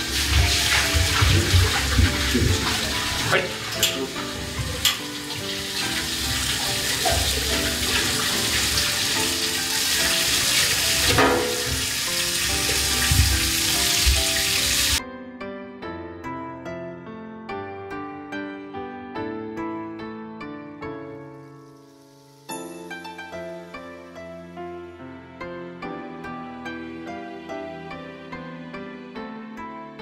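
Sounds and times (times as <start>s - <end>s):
background music: 0.0s - 30.0s
meat sizzling in a wok: 4.2s - 15.0s.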